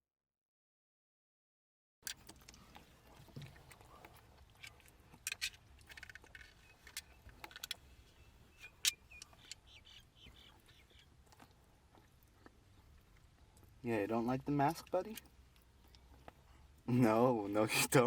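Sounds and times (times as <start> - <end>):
light clicks and handling noises: 2.1 - 9.8.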